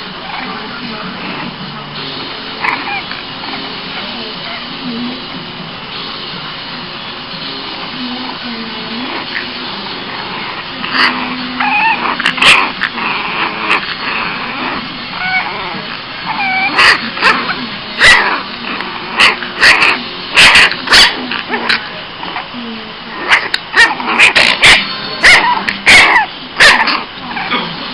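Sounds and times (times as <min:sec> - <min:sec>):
puppy whining: 0:00.2 - 0:05.2, 0:08.0 - 0:27.9
puppy yipping and barking: 0:02.6 - 0:04.6, 0:10.9 - 0:22.4, 0:23.2 - 0:27.6.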